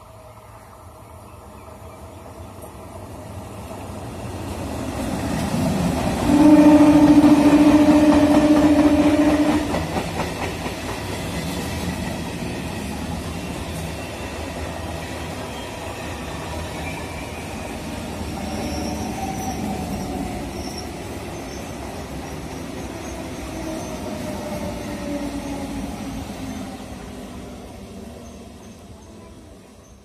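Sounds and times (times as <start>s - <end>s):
train wheels rumbling on rail: 1.0s - 30.0s
faint wheel squeal: 18.4s - 21.8s.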